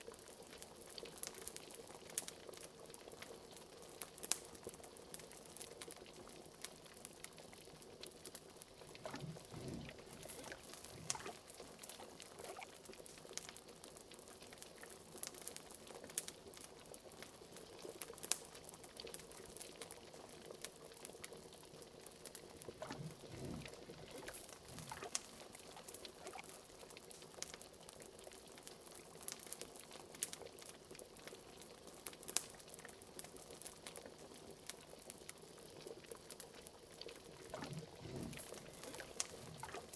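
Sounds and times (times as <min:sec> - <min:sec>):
liquid bubbling in a pot: 0:00.0 - 0:39.9
fire crackling and popping: 0:00.1 - 0:39.9
deep glug: 0:09.0 - 0:11.4, 0:37.5 - 0:39.9.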